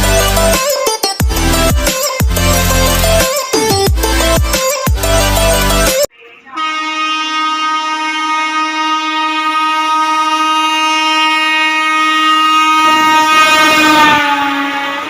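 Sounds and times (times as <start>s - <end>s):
locomotive horn blast: 0.0s - 1.8s, 6.6s - 15.0s.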